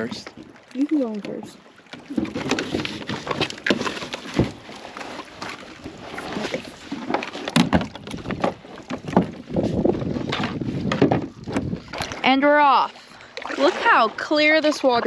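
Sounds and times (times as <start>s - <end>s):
knocks and clatters of kayak: 0.0s - 15.0s
water sloshing: 0.0s - 15.0s.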